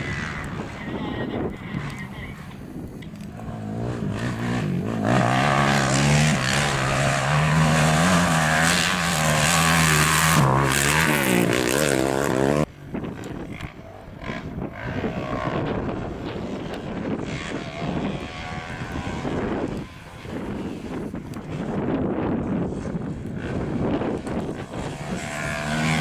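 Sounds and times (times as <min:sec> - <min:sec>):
distant engine: 0:00.0 - 0:26.0
wind noise on microphone: 0:00.0 - 0:26.0
rally car engine at high revs: 0:01.8 - 0:12.7, 0:23.4 - 0:26.0.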